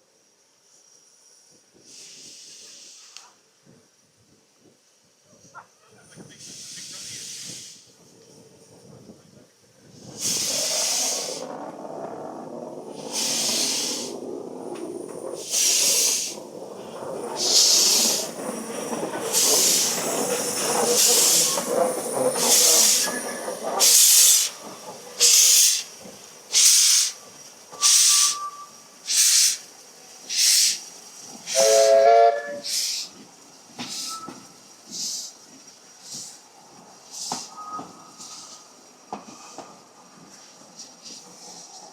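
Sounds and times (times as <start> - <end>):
hiss of steam: 0.6 - 4.0, 6.0 - 8.2, 9.8 - 11.8, 12.6 - 41.9
steam locomotive exhaust beats: 9.8 - 41.9.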